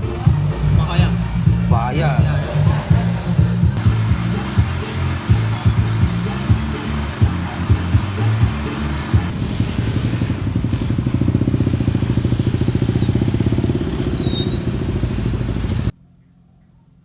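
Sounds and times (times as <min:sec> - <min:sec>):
motorbike engine running: 0:03.8 - 0:15.9.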